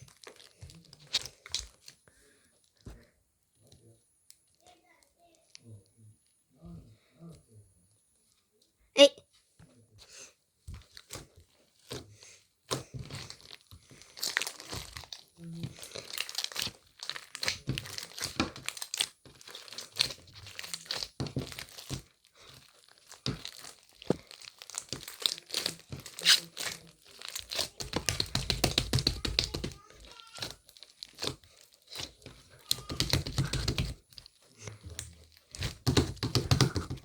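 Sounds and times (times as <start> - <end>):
crinkling and crackling: 0.0 - 3.1, 10.7 - 37.0.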